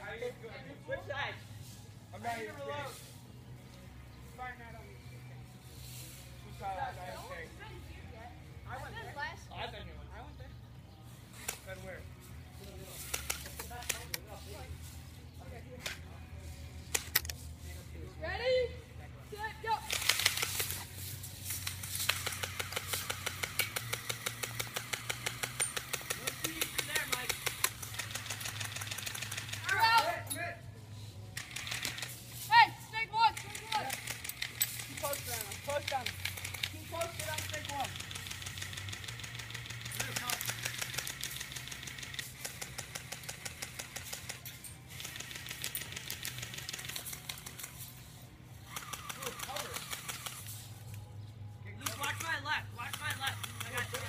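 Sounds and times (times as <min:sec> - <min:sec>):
airsoft gun rapid firing: 0:19.7 - 0:20.8, 0:21.6 - 0:30.0, 0:31.4 - 0:32.2, 0:33.4 - 0:47.7, 0:48.7 - 0:50.5, 0:51.8 - 0:54.0.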